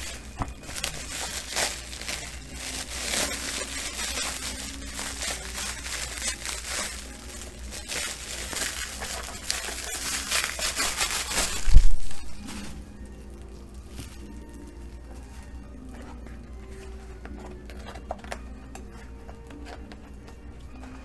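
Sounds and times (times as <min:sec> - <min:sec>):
packaging crinkling: 0:00.0 - 0:21.0.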